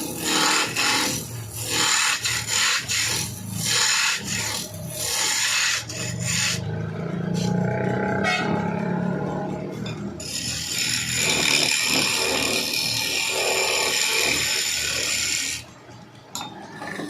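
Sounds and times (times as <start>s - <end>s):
saw rasping through wood: 0.0s - 6.7s, 10.2s - 15.7s.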